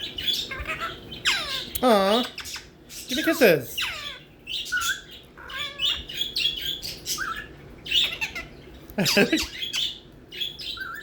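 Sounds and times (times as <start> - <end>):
parrot squawking and whistling: 0.2 - 8.5.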